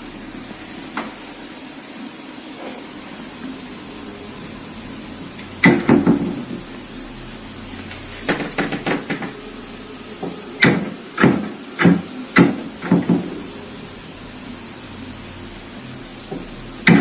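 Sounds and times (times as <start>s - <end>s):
wardrobe door knocking on frame: 8.3s - 9.4s, 10.6s - 13.3s.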